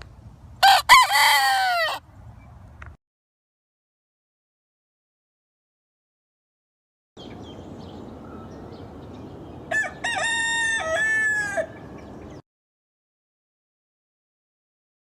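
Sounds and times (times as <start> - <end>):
rooster crowing: 0.6 - 2.0, 9.6 - 12.1.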